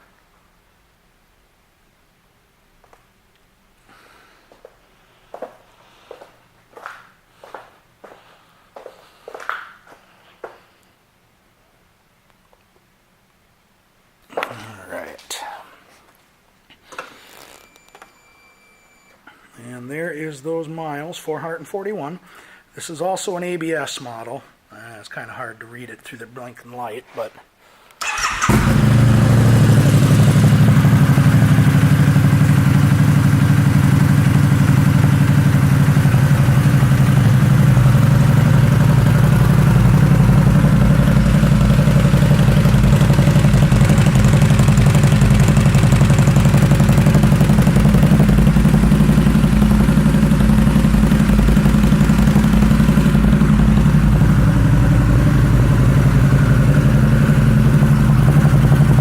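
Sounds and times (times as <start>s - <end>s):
motorcycle engine idling: 28.0s - 59.0s.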